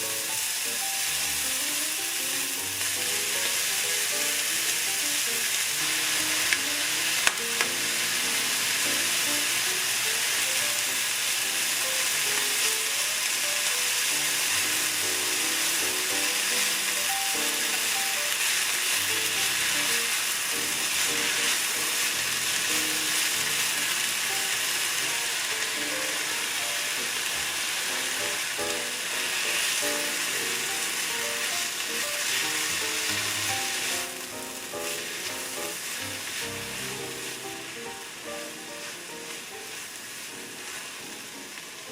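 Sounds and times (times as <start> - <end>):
food sizzling in a pan: 0.0 - 41.9.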